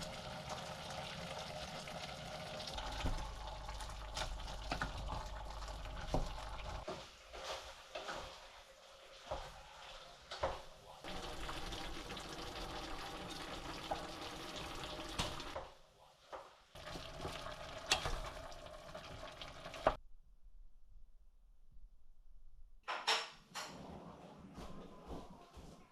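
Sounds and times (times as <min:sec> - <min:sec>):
water running from tap: 0:00.0 - 0:06.9, 0:08.6 - 0:15.6, 0:16.8 - 0:20.0.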